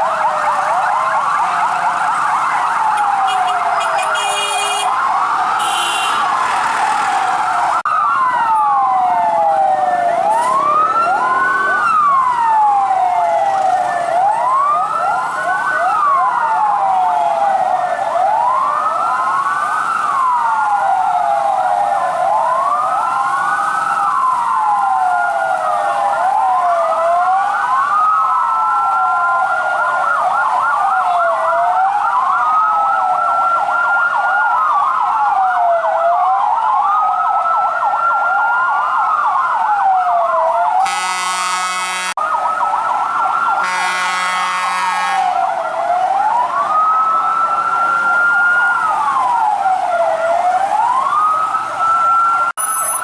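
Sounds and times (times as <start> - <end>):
fire truck sirens wailing: 0.0 - 53.0.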